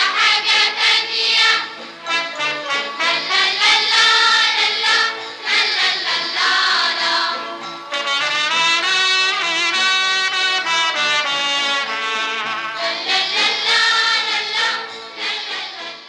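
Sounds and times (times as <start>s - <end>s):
brass passage: 0.0s - 16.0s
children's choir singing: 0.0s - 16.0s
musical backing: 0.0s - 16.0s.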